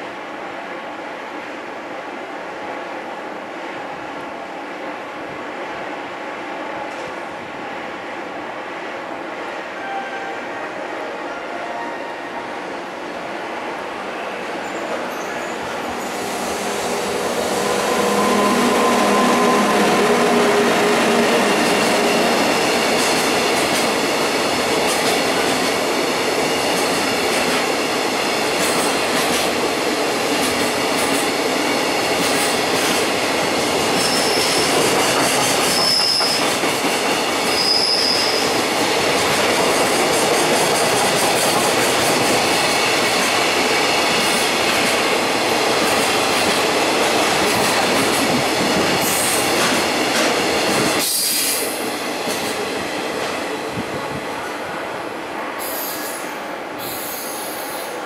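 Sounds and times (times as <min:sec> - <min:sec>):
electric locomotive hum: 0:08.3 - 0:28.2
freight train wheels rumbling: 0:12.2 - 0:58.0.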